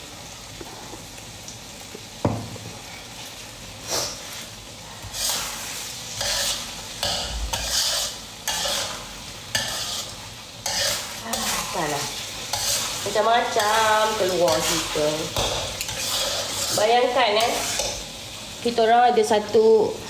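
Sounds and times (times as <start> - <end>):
food sizzling in a wok: 0.0 - 20.0
metal spatula scraping pan: 5.0 - 18.0.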